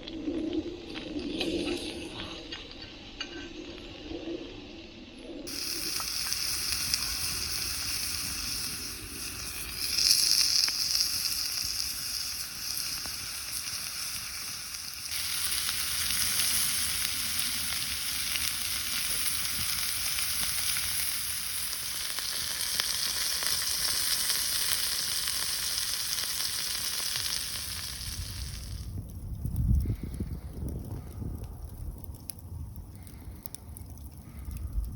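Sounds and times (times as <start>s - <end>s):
meat sizzling: 5.5s - 28.9s.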